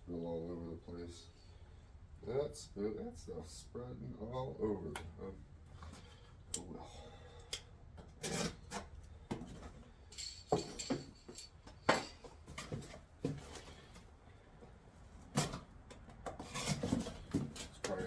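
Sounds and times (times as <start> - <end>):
objects rubbing and scraping: 16.3 - 18.0.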